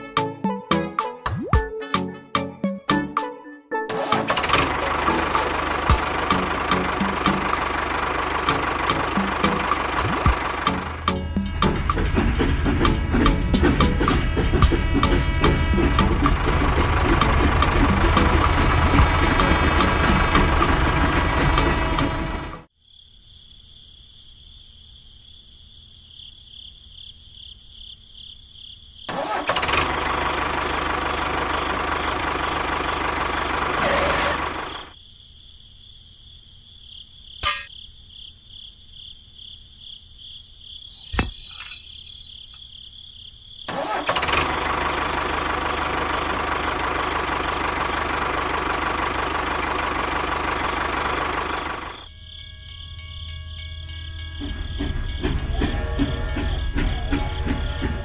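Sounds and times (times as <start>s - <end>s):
high pulsing buzz: 51.7s - 58.0s.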